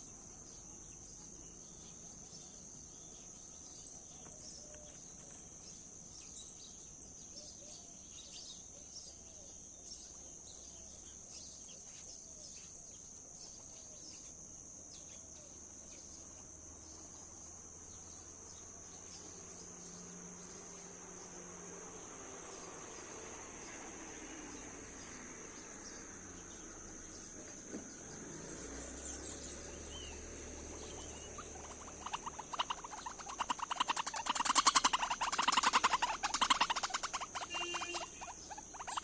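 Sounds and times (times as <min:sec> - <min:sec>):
insect trilling: 0:16.8 - 0:39.0.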